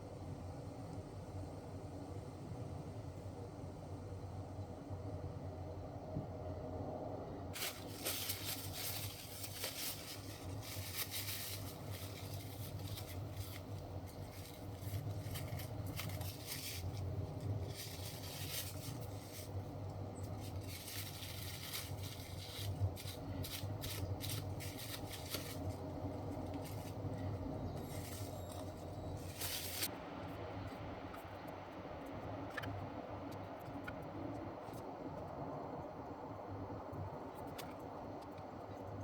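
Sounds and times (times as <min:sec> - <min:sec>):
steady low hum: 0:00.0 - 0:39.0
rustling and scraping: 0:07.6 - 0:29.9.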